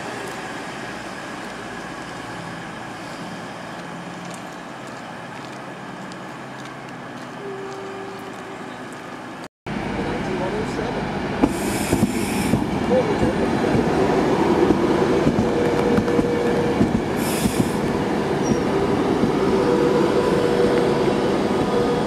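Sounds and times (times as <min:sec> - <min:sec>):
train rumble: 0:00.0 - 0:22.0
faint wheel squeal: 0:18.4 - 0:18.7.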